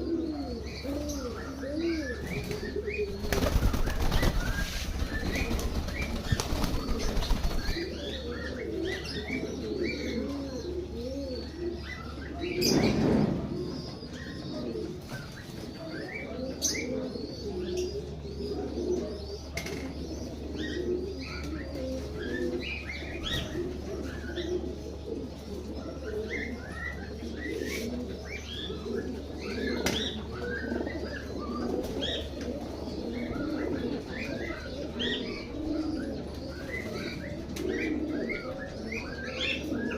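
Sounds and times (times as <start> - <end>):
pigeons cooing: 0.0 - 39.9
wings flapping: 2.4 - 8.0.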